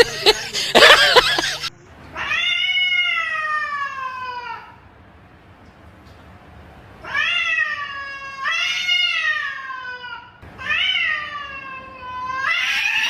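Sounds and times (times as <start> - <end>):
cat meowing: 2.2 - 4.8, 7.0 - 13.0.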